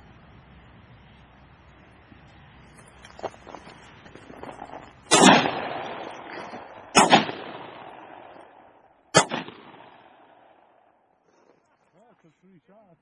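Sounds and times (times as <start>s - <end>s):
shotgun shots with rolling echo: 4.4s - 11.0s.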